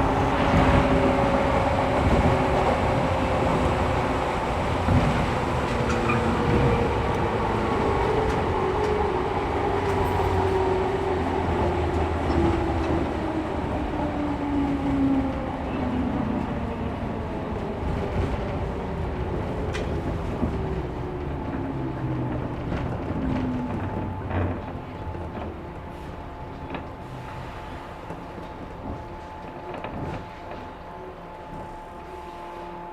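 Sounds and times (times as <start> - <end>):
train wheels rumbling on rail: 0.0 - 32.9.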